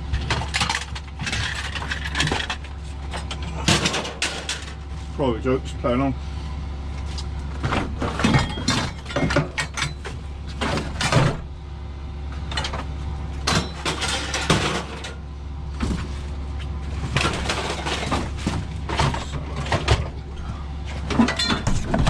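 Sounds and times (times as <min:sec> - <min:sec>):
low engine hum: 0:00.0 - 0:22.0
scrap metal clattering: 0:00.2 - 0:05.1, 0:13.5 - 0:15.2, 0:15.8 - 0:22.0.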